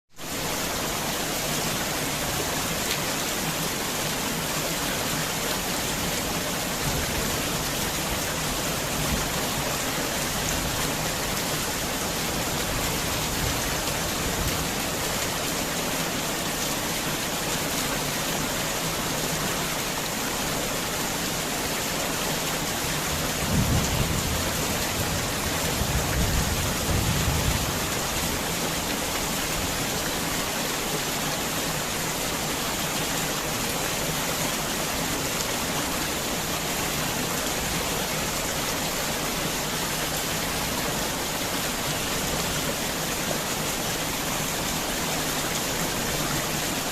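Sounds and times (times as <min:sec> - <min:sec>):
heavy rain: 0:00.1 - 0:46.9
low thunder rumbles: 0:23.2 - 0:28.0.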